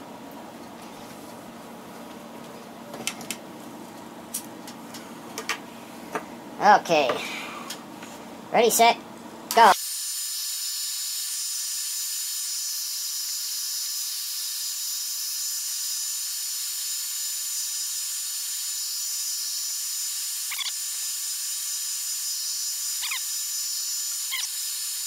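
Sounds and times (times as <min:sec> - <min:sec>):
hot-air tool blowing: 0:09.7 - 0:25.0.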